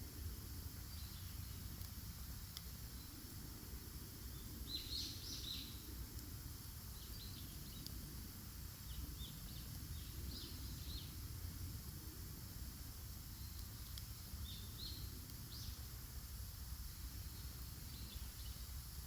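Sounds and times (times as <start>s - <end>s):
small birds chirping: 0.8s - 2.0s, 4.2s - 5.9s, 6.8s - 8.0s, 8.7s - 11.2s, 13.2s - 16.0s, 16.8s - 19.0s.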